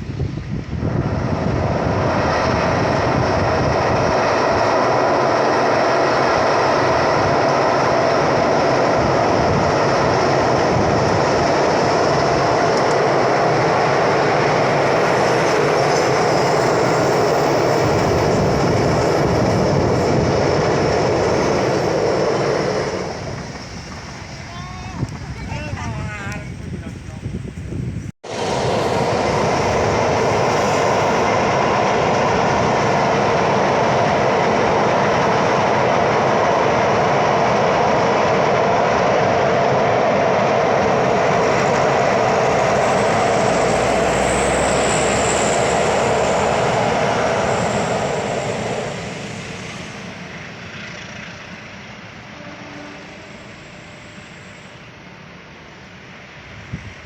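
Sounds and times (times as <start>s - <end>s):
train wheels rumbling on rails: 0.0s - 57.0s
high wheel squeal: 13.4s - 25.7s, 26.5s - 33.8s, 40.6s - 55.9s.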